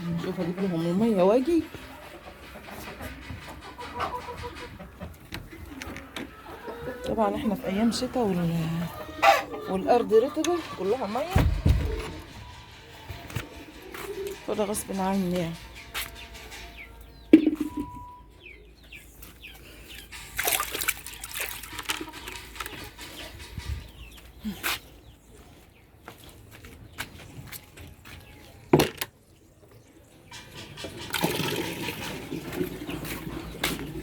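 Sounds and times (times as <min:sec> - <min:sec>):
water pouring and splashing: 0:20.2 - 0:22.6, 0:31.0 - 0:33.4.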